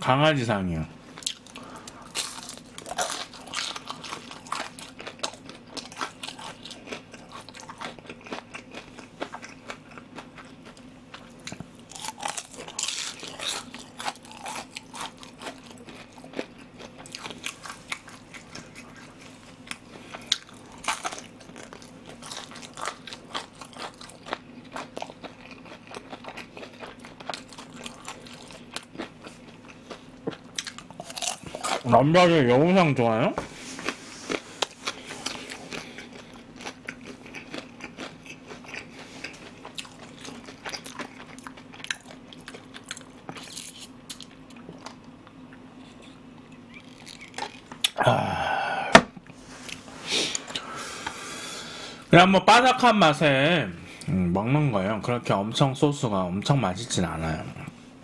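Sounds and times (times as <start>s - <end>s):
crunchy chewing: 1.1s - 32.3s, 33.6s - 48.0s.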